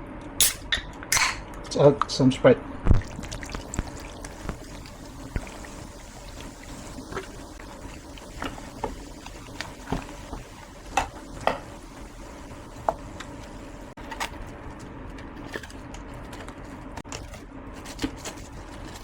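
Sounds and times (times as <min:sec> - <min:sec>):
soda poured with liquid hiss: 0:02.9 - 0:14.0.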